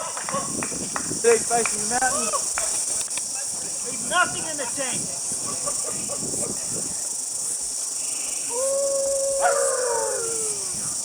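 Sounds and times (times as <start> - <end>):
steady high hiss: 0.0 - 11.0
long howl-like call: 8.4 - 11.0.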